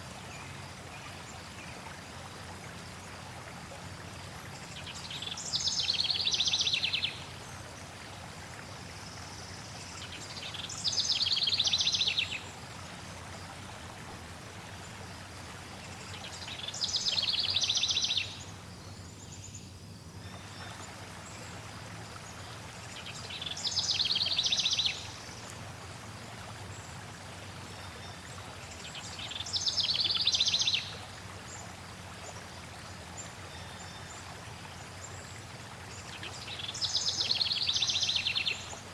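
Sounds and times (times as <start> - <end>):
flowing water: 0.0 - 38.9
songbird trilling: 16.5 - 18.4.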